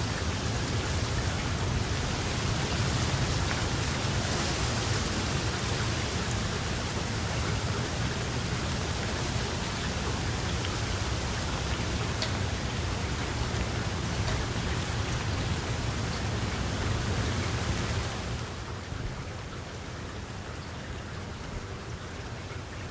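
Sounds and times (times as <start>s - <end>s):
raindrop ticks: 0.0s - 18.2s
heavy rain falling: 0.0s - 22.9s.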